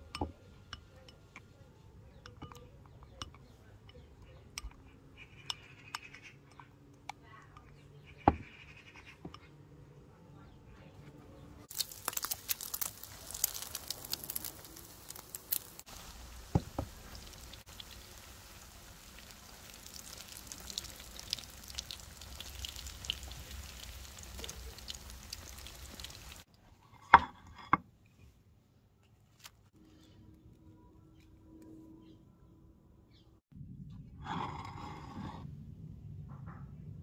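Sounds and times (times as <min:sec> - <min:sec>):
food sizzling in oil: 0:11.7 - 0:26.5.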